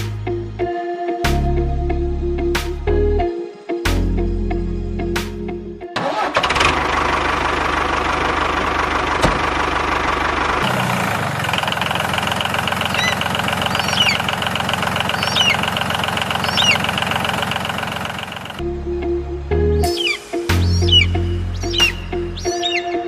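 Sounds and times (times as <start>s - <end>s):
small tractor engine running: 6.0s - 18.6s.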